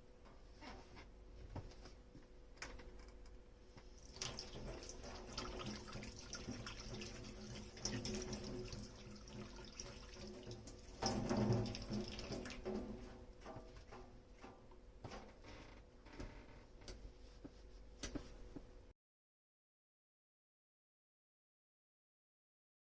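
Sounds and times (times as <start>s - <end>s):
tap running into sink: 4.1s - 15.2s.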